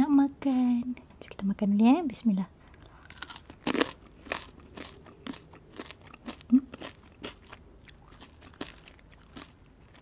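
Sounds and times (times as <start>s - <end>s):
crunchy chewing close up: 2.8s - 10.0s.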